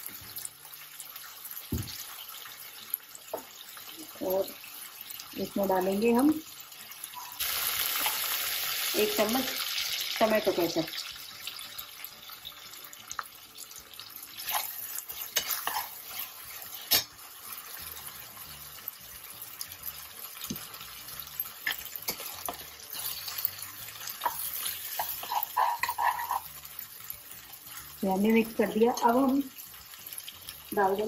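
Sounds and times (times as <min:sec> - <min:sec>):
pan sizzling: 0:00.0 - 0:31.0
metal spoon scraping a pan: 0:14.4 - 0:18.1, 0:21.4 - 0:26.8.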